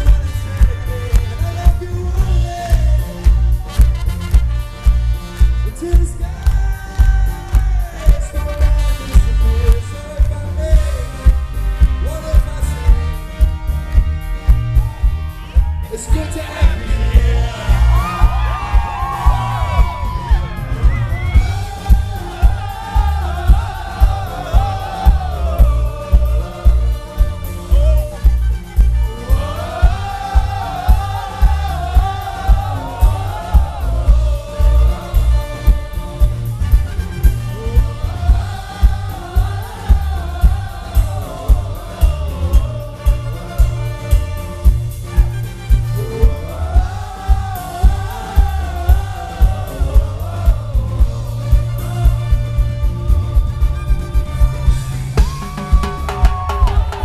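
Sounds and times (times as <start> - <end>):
bass and drum beat: 0.0 - 57.0
wordless group singing: 15.9 - 20.2, 21.1 - 44.8, 45.4 - 57.0.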